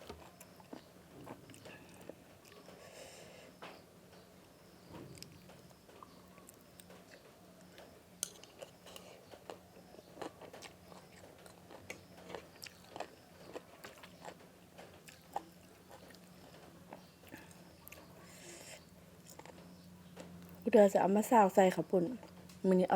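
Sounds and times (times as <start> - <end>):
person chewing food: 0.0 - 3.0, 6.0 - 14.4, 15.0 - 19.6.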